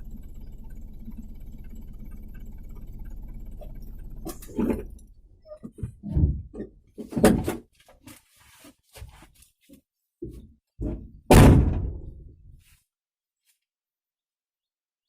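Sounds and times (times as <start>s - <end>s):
knocks and thumps: 5.6s - 8.1s, 10.2s - 12.3s.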